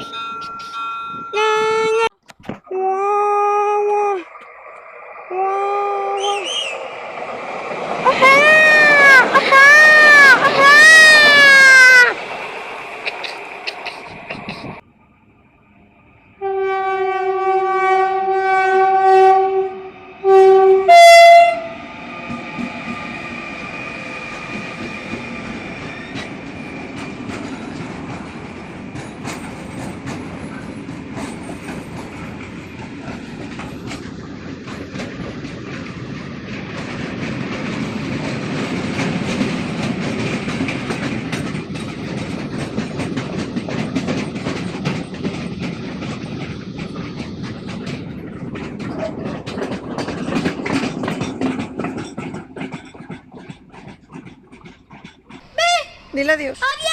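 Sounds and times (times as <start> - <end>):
train wheels clattering on rails: 6.2 - 14.8, 20.5 - 56.9
train horn blasts: 16.4 - 21.8.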